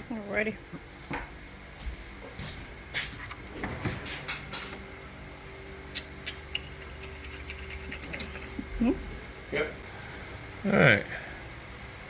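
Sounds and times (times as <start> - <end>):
faint steady hum: 4.6 - 12.0.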